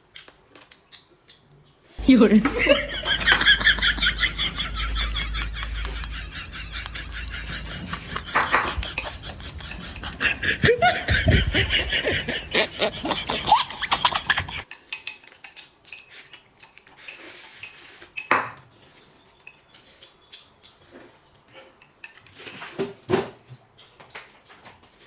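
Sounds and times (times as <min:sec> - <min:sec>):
tableware clattering and scraping: 0:02.4 - 0:11.4, 0:12.0 - 0:16.3
utensils clicking against dishes: 0:14.0 - 0:18.3.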